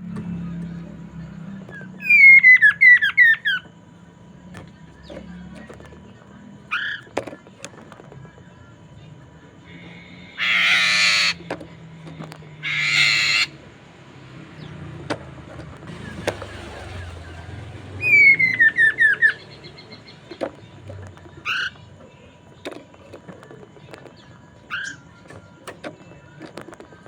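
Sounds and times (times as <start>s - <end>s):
bird harsh raspy calls: 1.7s - 3.7s, 6.7s - 7.1s, 9.7s - 11.5s, 12.5s - 13.7s, 15.9s - 20.4s, 21.3s - 21.9s, 24.7s - 25.1s
bird whistled descending notes: 17.9s - 19.7s.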